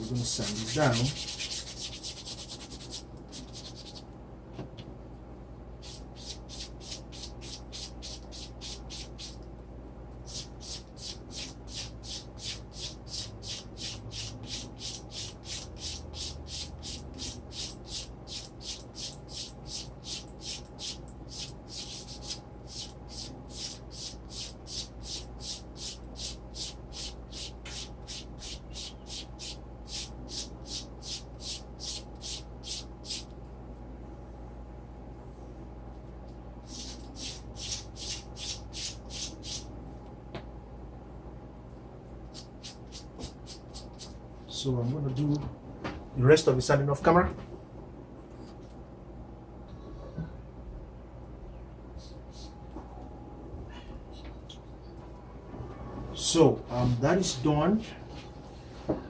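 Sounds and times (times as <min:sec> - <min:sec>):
sandpaper rubbing leather: 0:00.2 - 0:04.0, 0:05.8 - 0:09.4, 0:10.3 - 0:33.3, 0:36.7 - 0:39.7.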